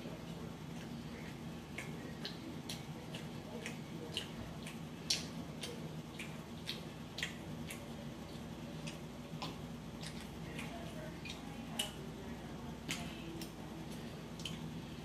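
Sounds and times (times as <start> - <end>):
close chewing of food: 0.0 - 15.0
low steady hum: 0.0 - 15.0
wet mouth clicks: 1.7 - 12.0.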